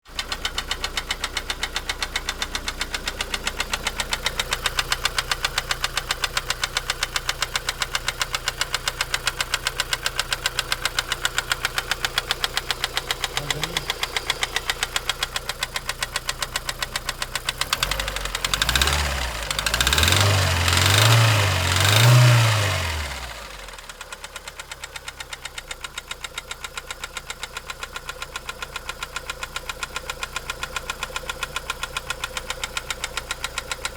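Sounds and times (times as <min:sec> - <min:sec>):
car engine idling: 0:00.1 - 0:33.9
engine knocking: 0:00.1 - 0:33.9
engine revving: 0:11.7 - 0:15.6, 0:17.5 - 0:23.8.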